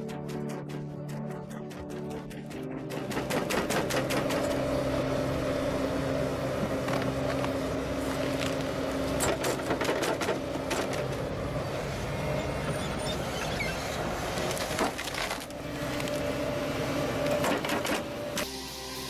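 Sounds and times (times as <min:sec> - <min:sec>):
machine engine running: 0:01.8 - 0:18.5
wood cracking and crunching: 0:14.3 - 0:16.2.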